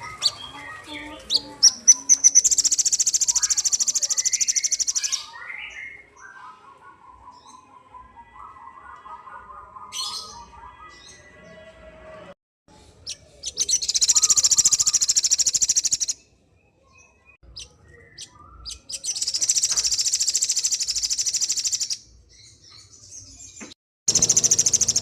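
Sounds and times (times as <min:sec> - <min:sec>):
bird trilling: 0:00.0 - 0:06.0, 0:13.1 - 0:16.2, 0:17.5 - 0:22.0, 0:24.1 - 0:25.0.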